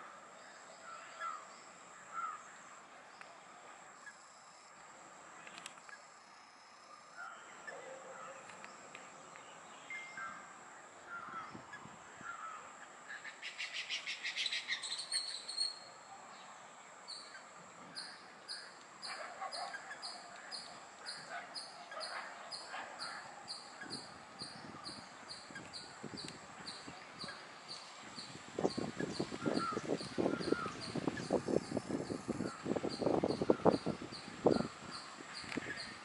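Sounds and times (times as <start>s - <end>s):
lower bird calls: 17.1s - 36.0s.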